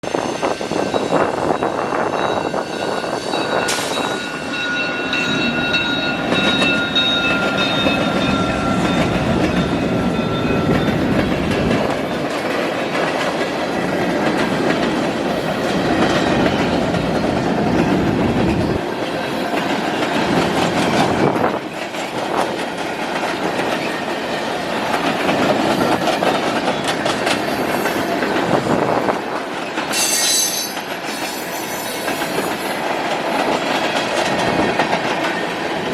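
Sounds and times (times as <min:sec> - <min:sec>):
high ringing tone: 0:00.2 - 0:11.2, 0:29.9 - 0:32.0
train wheels clacking over rail joints: 0:05.1 - 0:35.9.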